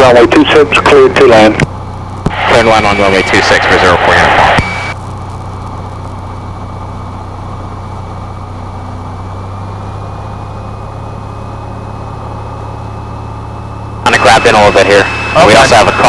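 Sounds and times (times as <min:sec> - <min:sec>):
propeller plane engine droning: 0:00.0 - 0:16.0
thin high whine: 0:14.0 - 0:16.0.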